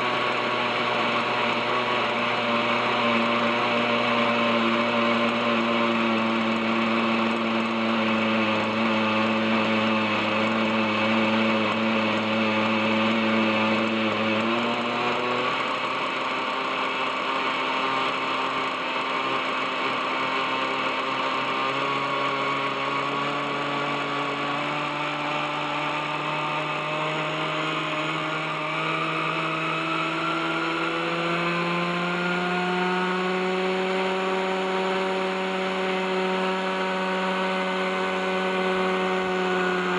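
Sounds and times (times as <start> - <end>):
model helicopter engine running: 0.0 - 39.9.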